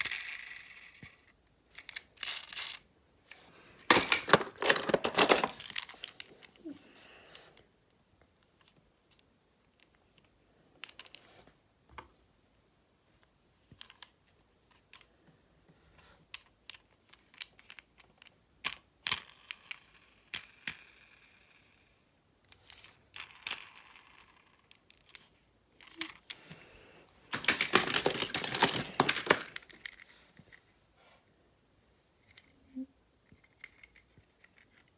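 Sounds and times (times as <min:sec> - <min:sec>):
rustling and crinkling: 0:01.7 - 0:06.8, 0:25.0 - 0:31.2.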